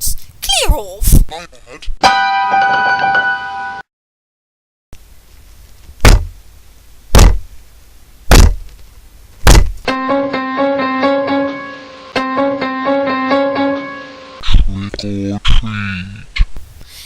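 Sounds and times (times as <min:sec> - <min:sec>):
keyboard tune: 0:02.0 - 0:03.8, 0:09.9 - 0:14.4
heavy knocks on a door: 0:06.0 - 0:06.3, 0:07.1 - 0:07.4, 0:08.3 - 0:08.6, 0:09.4 - 0:09.8.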